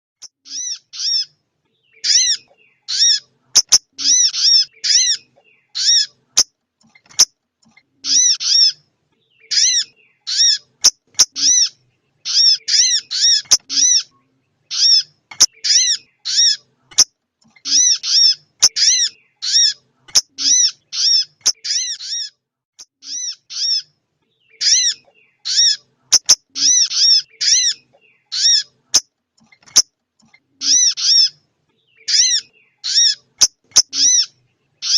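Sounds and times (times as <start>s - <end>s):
faint clicks: 28.9s - 30.4s.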